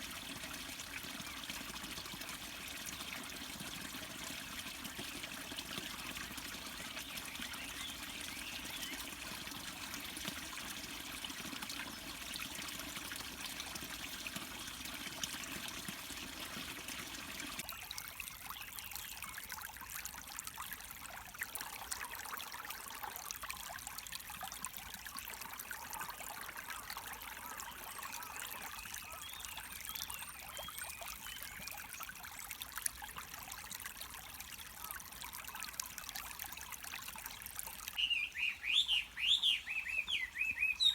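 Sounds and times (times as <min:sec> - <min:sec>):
stream water trickling and splashing: 0:00.0 - 0:40.9
small birds chirping: 0:38.0 - 0:40.9.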